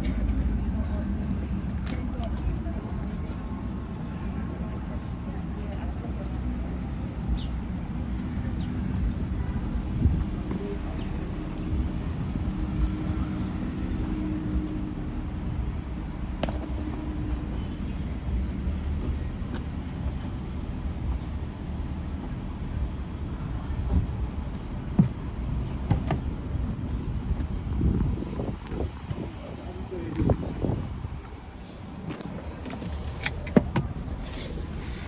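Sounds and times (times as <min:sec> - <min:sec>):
car driving rumble: 0:00.0 - 0:35.0.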